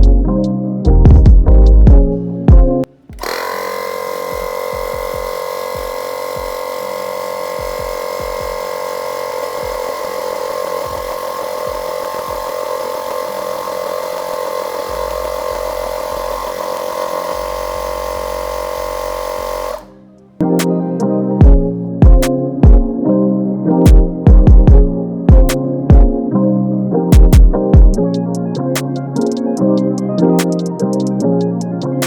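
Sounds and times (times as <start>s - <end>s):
tyre inflator motor whine: 3.1s - 20.0s.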